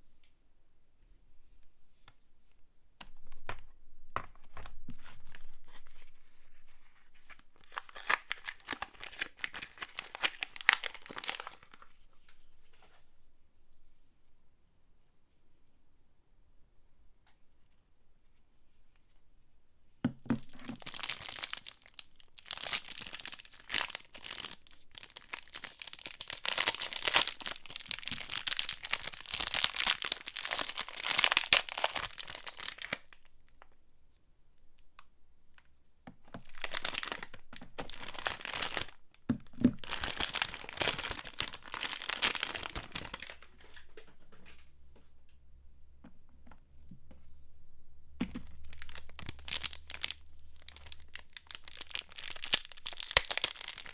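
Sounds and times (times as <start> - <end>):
packaging tearing and crinkling: 7.1 - 11.8, 20.4 - 33.2, 36.4 - 43.7, 48.2 - 53.9.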